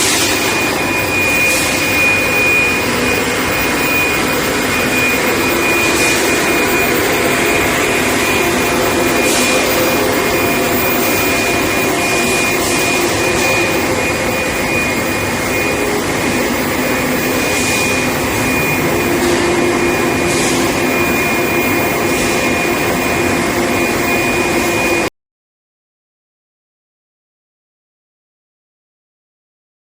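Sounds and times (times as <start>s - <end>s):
dense machine hum: 0.0s - 25.1s
high-pitched machine whine: 0.0s - 25.1s.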